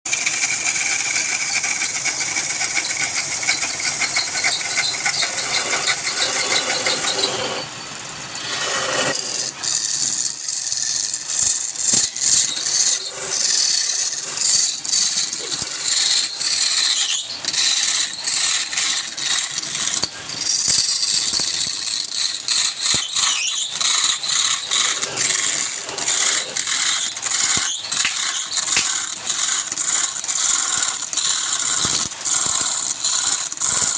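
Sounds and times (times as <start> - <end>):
rapid rattling clicks: 0.1 - 7.4
lathe tool scraping wood: 0.1 - 33.9.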